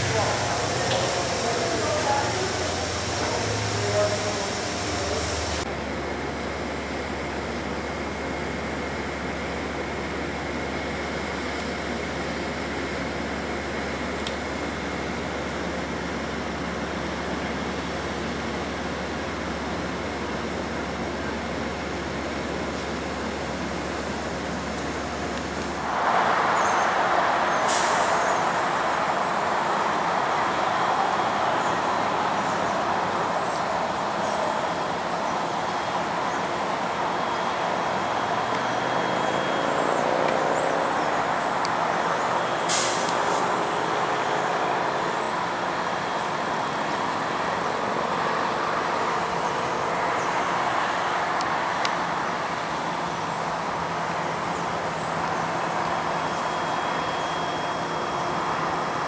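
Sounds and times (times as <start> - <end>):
train engine idling: 0.0 - 59.0
air brake hisses: 25.8 - 29.4, 42.6 - 43.6.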